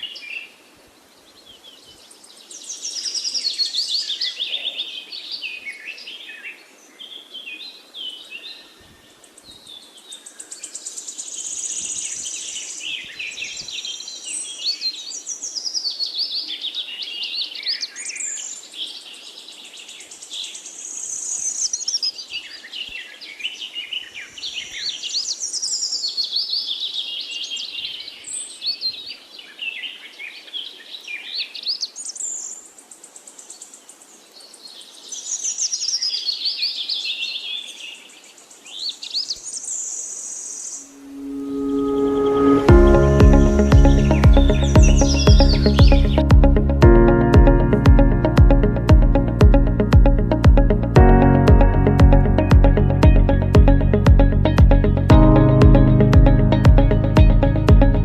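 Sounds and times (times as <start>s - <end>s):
faint background hiss: 0.0s - 44.3s
small birds chirping: 43.3s - 46.8s.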